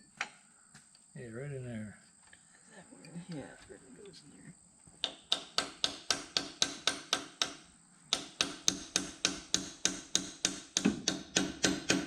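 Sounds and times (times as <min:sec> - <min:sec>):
hammer striking chisel: 0:05.0 - 0:12.0.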